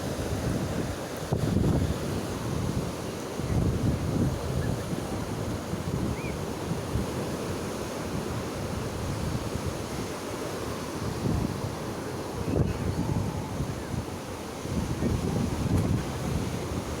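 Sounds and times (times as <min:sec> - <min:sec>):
surf washing onto beach: 0:00.0 - 0:17.0
wind buffeting microphone: 0:00.0 - 0:17.0.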